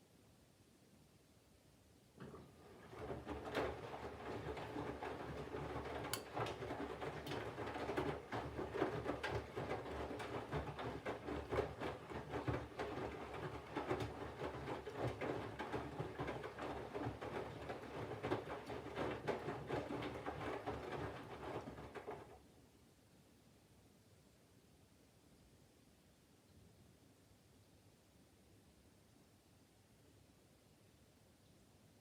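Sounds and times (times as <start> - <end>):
wet laundry tumbling: 2.2 - 22.4.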